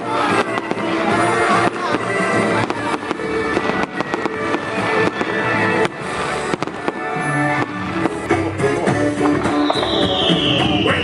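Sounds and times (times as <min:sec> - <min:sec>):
sharp firework bangs: 0:00.0 - 0:08.3
fireworks bursting and crackling: 0:00.0 - 0:11.0
loud music: 0:00.0 - 0:11.0.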